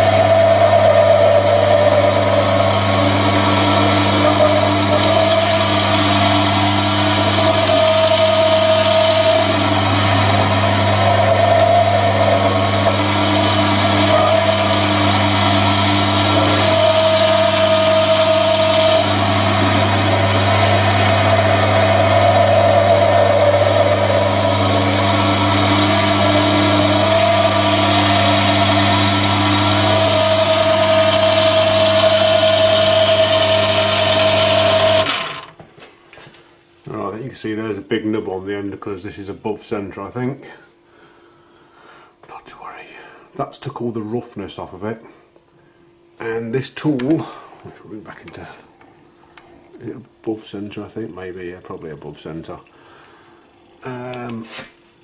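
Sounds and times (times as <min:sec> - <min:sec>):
wavering cutting tone: 0:00.0 - 0:33.7
lathe motor hum: 0:00.0 - 0:35.5.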